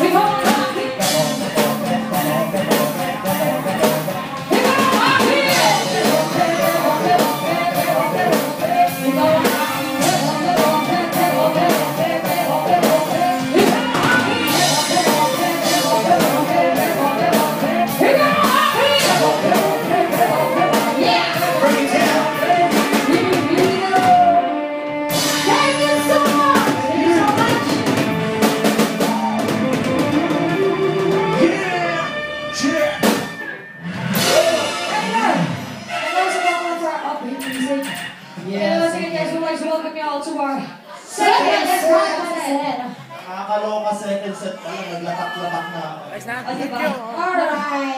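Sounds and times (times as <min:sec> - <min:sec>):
live rock band playing: 0:00.0 - 0:38.3.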